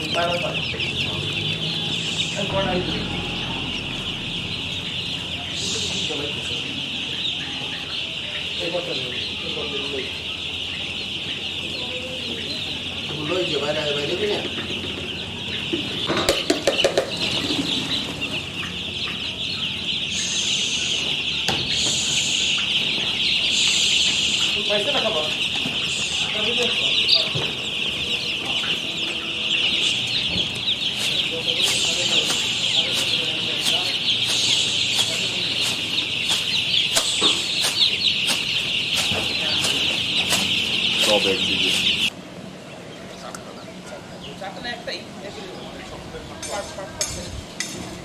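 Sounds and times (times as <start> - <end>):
chickens cheeping and clucking: 0.0 - 48.0.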